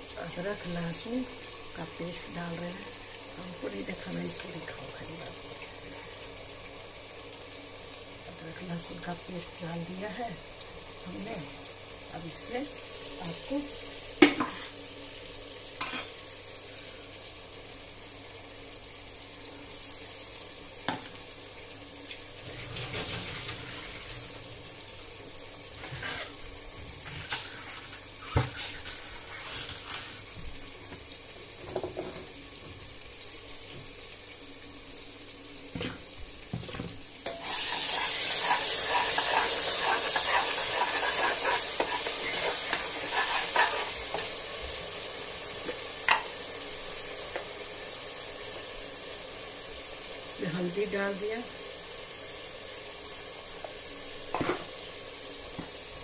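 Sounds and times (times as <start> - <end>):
onions sizzling in hot oil: 0.0 - 56.0
metal spatula scraping a pan: 25.8 - 26.4, 27.0 - 30.3, 37.4 - 44.4.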